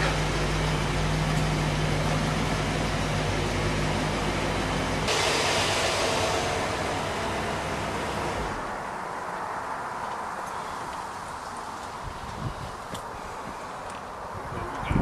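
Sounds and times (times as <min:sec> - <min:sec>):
car engine fast idle drone: 0:00.0 - 0:08.8
steady hissing rush: 0:05.1 - 0:09.7.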